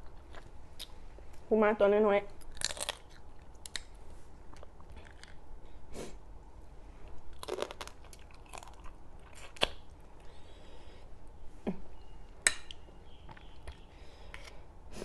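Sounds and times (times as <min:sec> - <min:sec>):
crisp crunches: 0:02.4 - 0:03.9, 0:07.3 - 0:09.9
person chewing: 0:02.4 - 0:05.5, 0:07.3 - 0:10.6.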